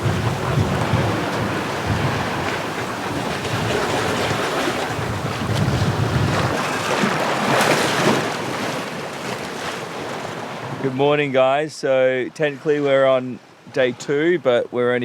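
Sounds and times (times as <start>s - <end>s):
wind buffeting microphone: 0.0s - 8.6s
choppy sea waves: 0.0s - 15.0s.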